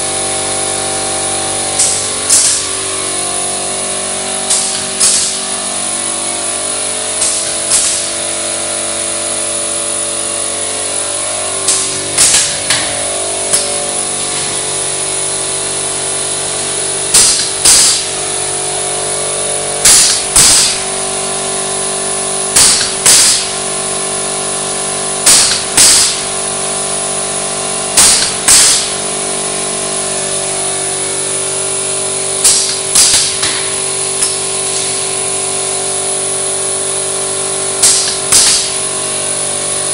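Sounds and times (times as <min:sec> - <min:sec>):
roll-forming machine humming: 0:00.0 - 0:39.9
guillotine cutting bursts: 0:19.8 - 0:21.0.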